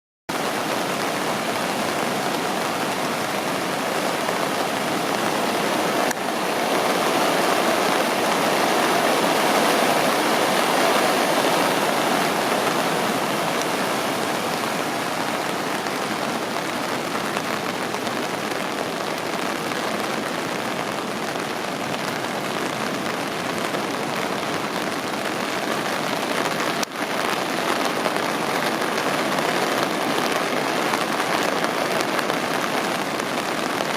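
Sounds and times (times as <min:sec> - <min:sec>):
rushing river water: 0:00.3 - 0:33.9.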